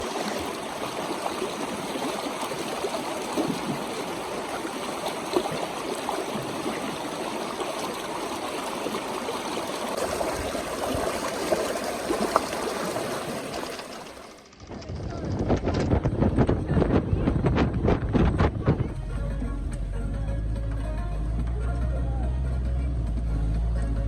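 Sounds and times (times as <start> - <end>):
stream rushing and trickling: 0.0 - 14.5.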